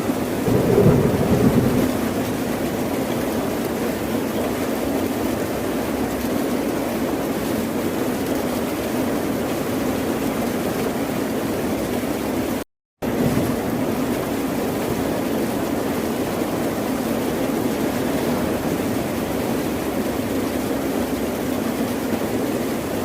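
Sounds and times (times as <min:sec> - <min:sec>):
ocean surf: 0:00.4 - 0:02.8.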